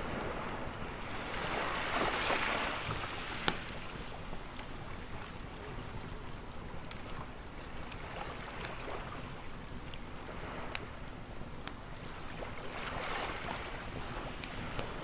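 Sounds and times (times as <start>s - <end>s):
ocean waves: 0.0s - 6.1s, 12.0s - 15.0s
wood fire crackling and popping: 0.0s - 15.0s.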